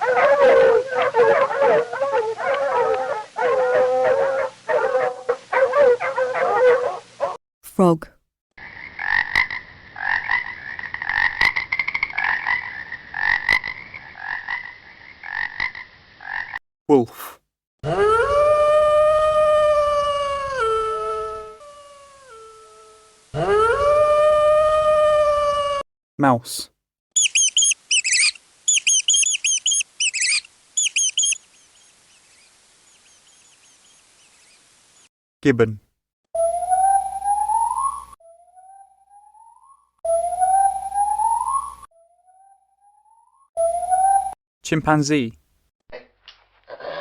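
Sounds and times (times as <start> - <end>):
frog croaking: 8.6 - 16.6, 27.2 - 31.4
mouse squeaking: 27.2 - 31.4.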